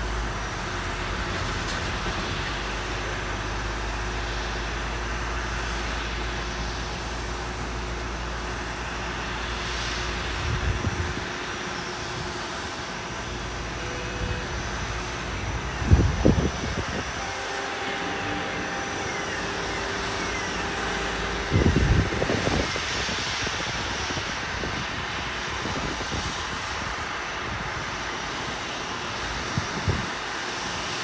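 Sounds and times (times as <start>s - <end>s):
jet turbine noise: 0.0s - 31.0s.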